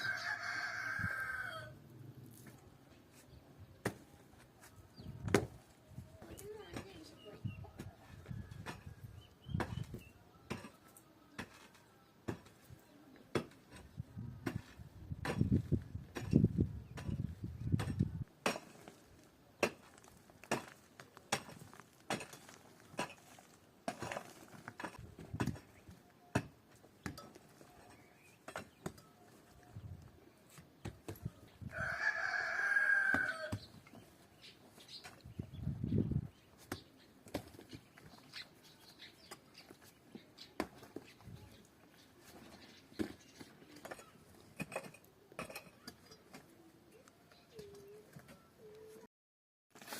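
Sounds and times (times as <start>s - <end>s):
rooster crowing: 0.0s - 1.8s, 31.7s - 33.6s.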